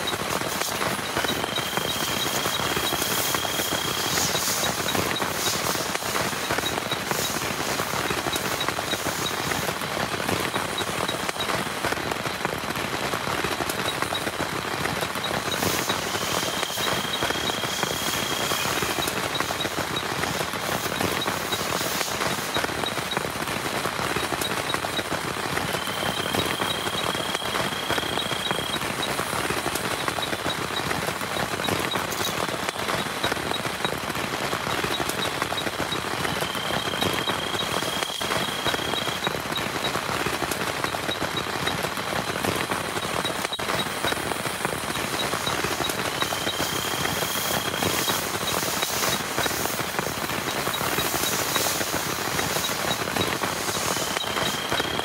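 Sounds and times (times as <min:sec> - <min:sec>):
heavy rain patter: 0:00.0 - 0:55.0.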